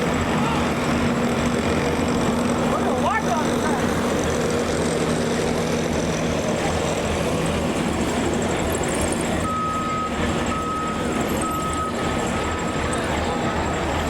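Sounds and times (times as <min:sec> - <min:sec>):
heavy vehicle engine idling: 0:00.0 - 0:14.0
reversing alarm beeping: 0:09.4 - 0:14.0.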